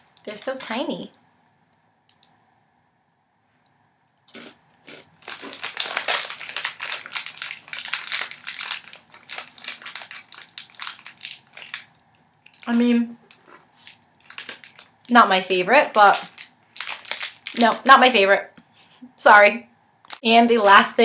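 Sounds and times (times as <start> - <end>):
crunchy biscuit chewing: 4.3 - 12.7.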